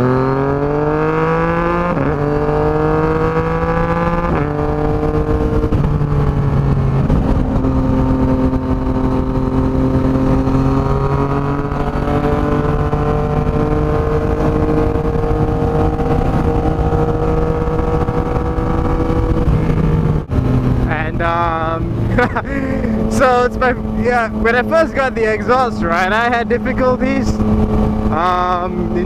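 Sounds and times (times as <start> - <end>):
motorcycle engine riding: 0.0 - 29.0.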